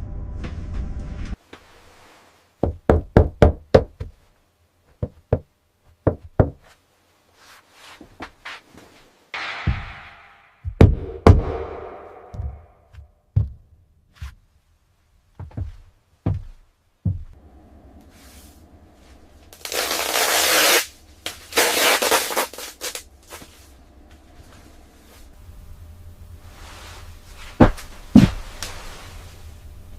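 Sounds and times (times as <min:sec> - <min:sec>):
sharp knocks: 0:09.4 - 0:13.6
steady low hum: 0:09.4 - 0:29.9.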